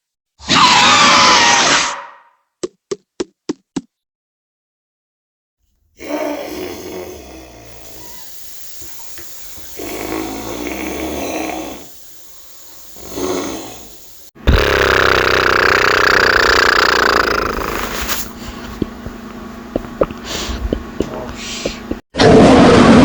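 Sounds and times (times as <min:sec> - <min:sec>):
creature animal calls: 0:00.4 - 0:02.3, 0:14.6 - 0:18.2.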